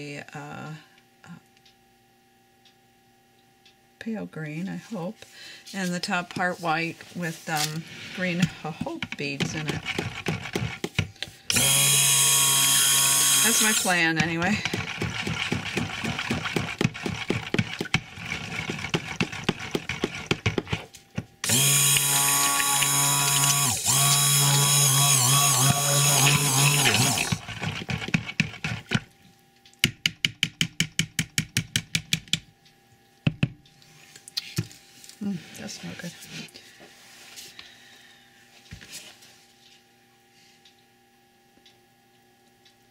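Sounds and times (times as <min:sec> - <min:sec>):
stick blender motor humming: 0:06.2 - 0:29.2.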